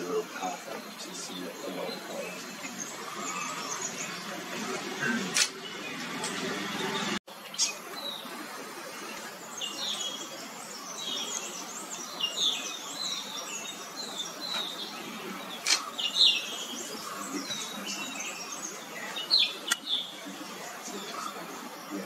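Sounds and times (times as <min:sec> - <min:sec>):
small birds chirping: 0:00.0 - 0:22.0
sharp clicks: 0:15.6 - 0:15.9.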